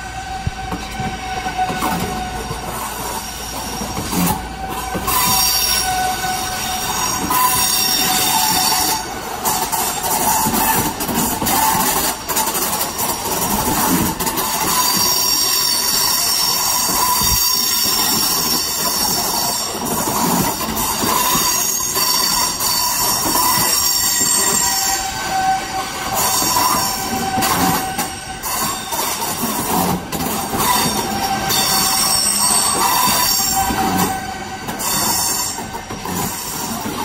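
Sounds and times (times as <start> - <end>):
train cars rumbling: 0.0 - 37.0
train wheels squealing: 0.0 - 37.0.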